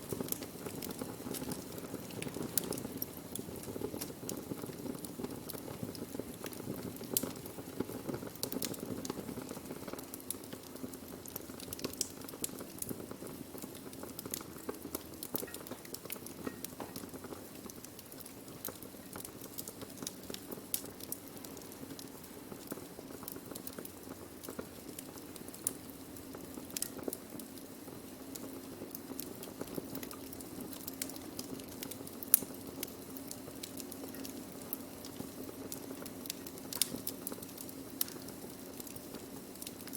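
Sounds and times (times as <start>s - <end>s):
low rumble of flames: 0.0s - 39.9s
wood crackling and popping: 0.0s - 39.9s.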